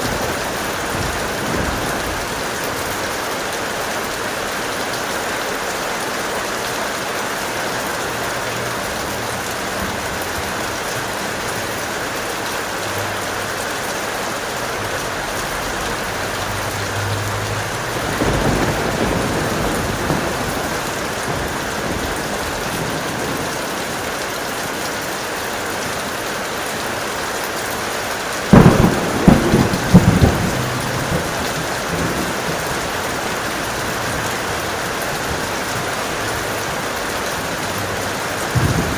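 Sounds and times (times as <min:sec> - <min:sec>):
loud thunderclap: 0:00.0 - 0:03.1, 0:17.6 - 0:23.6, 0:28.5 - 0:32.9, 0:38.5 - 0:38.9
low rumble of thunder: 0:00.0 - 0:03.2, 0:17.5 - 0:24.1, 0:28.5 - 0:36.0, 0:37.9 - 0:38.9
heavy rain: 0:00.0 - 0:38.9.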